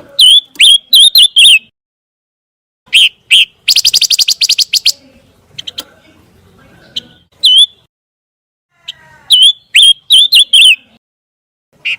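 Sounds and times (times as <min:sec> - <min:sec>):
bird chirping: 0:00.1 - 0:01.7, 0:02.9 - 0:07.9, 0:08.9 - 0:11.0.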